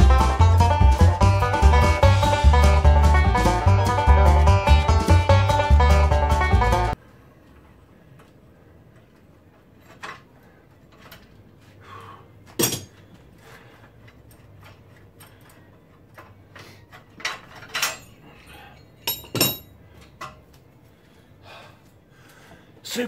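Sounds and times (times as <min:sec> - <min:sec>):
tools clinking on metal parts: 0:12.6 - 0:13.0, 0:14.0 - 0:20.4.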